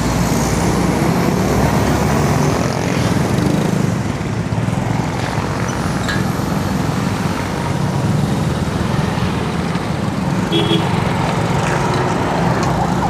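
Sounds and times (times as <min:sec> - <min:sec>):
road noise rushing: 0:00.0 - 0:13.0
vehicle engines running: 0:00.0 - 0:13.0.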